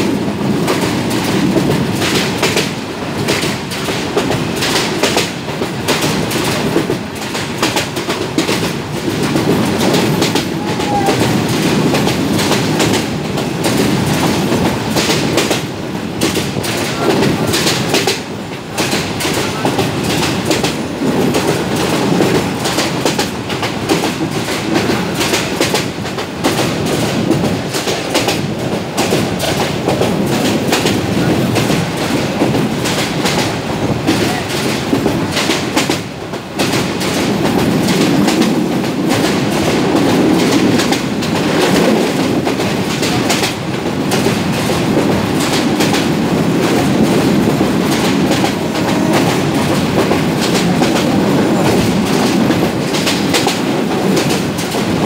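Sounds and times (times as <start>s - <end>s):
train rumble and rush: 0.0s - 55.0s
wheels clacking over rail joints: 0.0s - 55.0s.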